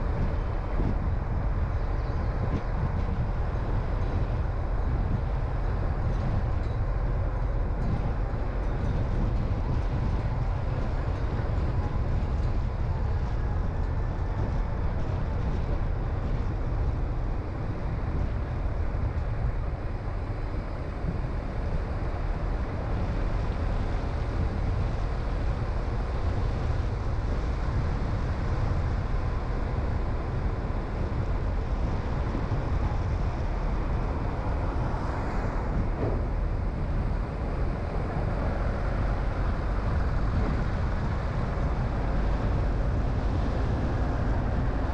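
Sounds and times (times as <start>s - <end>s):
car engine and tyre rumble: 0.0s - 44.9s.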